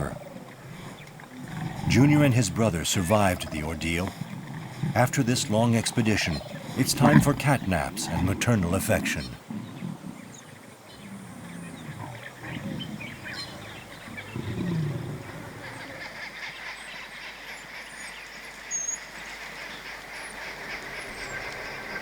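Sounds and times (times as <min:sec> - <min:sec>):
low animal calls: 0:00.0 - 0:18.0
birds chirping: 0:00.0 - 0:22.0.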